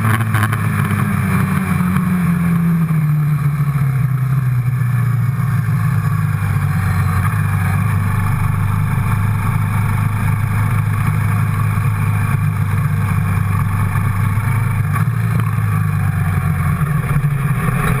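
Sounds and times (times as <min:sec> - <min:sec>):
quad bike engine running: 0:00.0 - 0:18.0.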